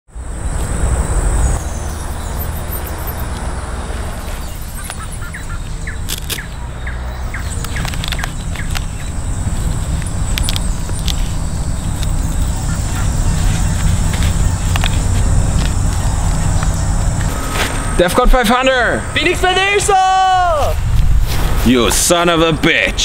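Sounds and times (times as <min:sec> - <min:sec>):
birds chirping: 0:00.1 - 0:23.0
low outdoor rumble: 0:00.1 - 0:23.0
sharp clicks: 0:04.8 - 0:09.2, 0:09.8 - 0:11.2.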